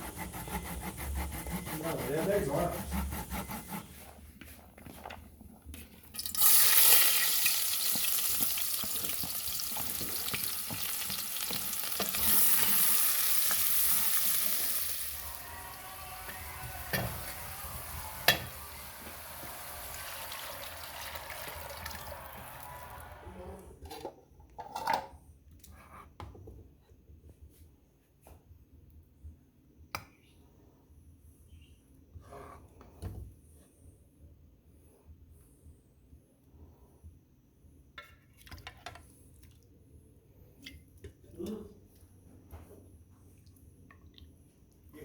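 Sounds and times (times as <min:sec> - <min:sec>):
food sizzling in a pan: 0:06.2 - 0:23.2.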